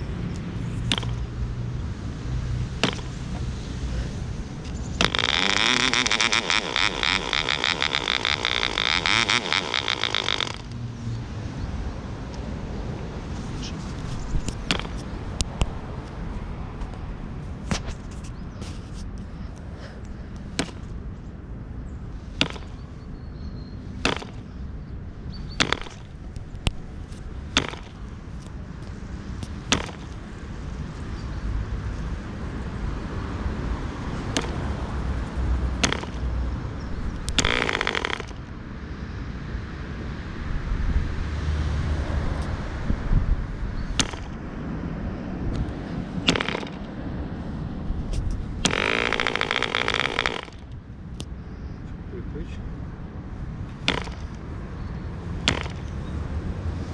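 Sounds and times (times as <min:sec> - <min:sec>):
model engine popping and sputtering: 0:00.9 - 0:01.2, 0:04.7 - 0:10.8, 0:22.4 - 0:22.8, 0:24.0 - 0:24.4, 0:25.6 - 0:26.1, 0:27.6 - 0:28.0, 0:29.7 - 0:30.2, 0:34.3 - 0:34.7, 0:35.8 - 0:36.3, 0:37.2 - 0:38.4, 0:44.0 - 0:44.4, 0:46.3 - 0:46.9, 0:48.6 - 0:50.7, 0:53.8 - 0:54.4, 0:55.4 - 0:55.9.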